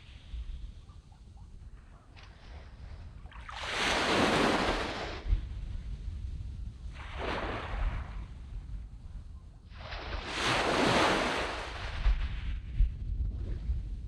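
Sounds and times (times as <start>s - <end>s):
wind buffeting microphone: 0.0s - 14.0s
sea waves breaking on sand: 3.4s - 5.3s, 7.0s - 8.2s, 9.7s - 12.5s.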